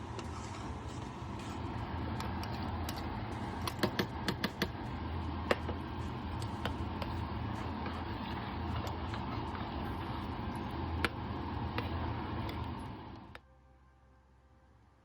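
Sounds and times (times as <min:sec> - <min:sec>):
kitchen clicks and taps: 0:02.2 - 0:04.8.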